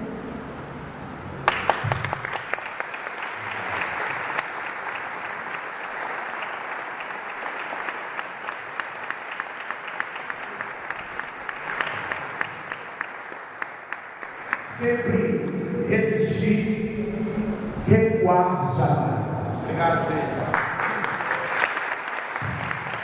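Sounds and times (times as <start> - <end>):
loud single claps: 1.4 - 14.7, 20.5 - 23.0
audience applauding: 1.4 - 15.1, 20.4 - 23.0.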